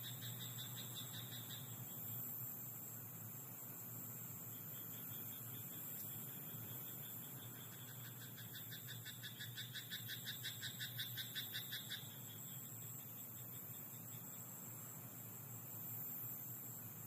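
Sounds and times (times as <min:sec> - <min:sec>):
high-pitched insect chorus: 0:00.0 - 0:17.0
frog croaking rapidly: 0:07.6 - 0:12.3.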